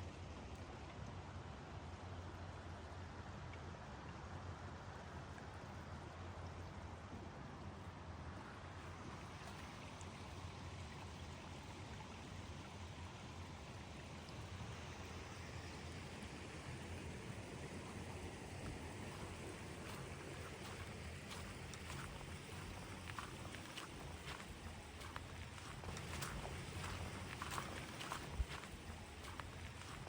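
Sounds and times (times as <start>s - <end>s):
running water: 16.7s - 30.0s.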